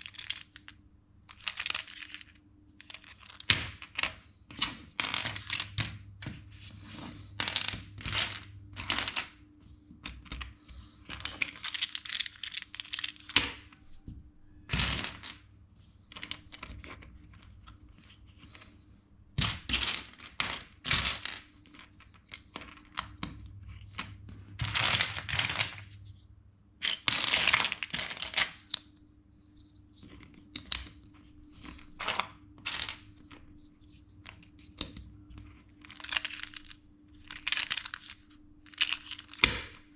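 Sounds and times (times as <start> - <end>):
plastic bricks clicking together: 11.1 - 13.6, 35.8 - 39.8.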